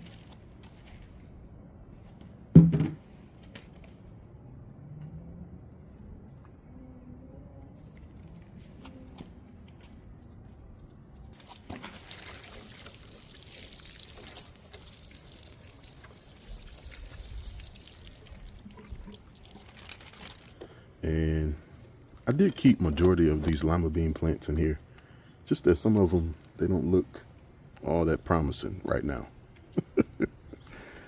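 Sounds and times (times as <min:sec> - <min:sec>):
water pouring in a stream: 0:11.4 - 0:20.5.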